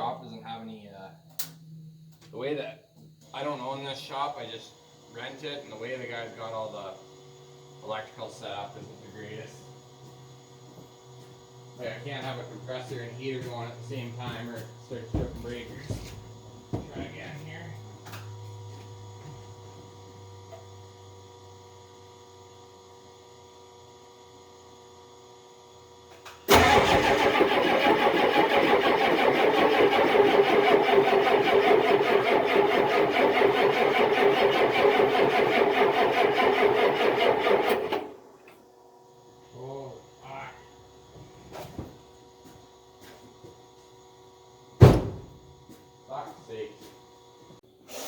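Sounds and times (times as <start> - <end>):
faint electrical hum: 0.0 - 18.3
engine cranking on starter motor: 26.4 - 38.6.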